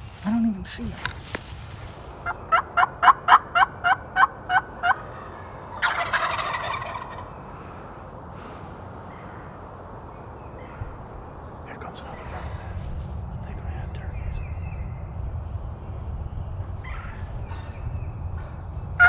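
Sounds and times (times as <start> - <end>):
turkey yelping: 1.9 - 12.5
turkey gobble: 1.9 - 12.6.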